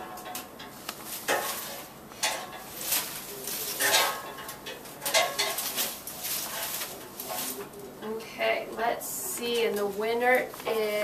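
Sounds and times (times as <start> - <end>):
papers rustling in container: 2.6 - 7.9.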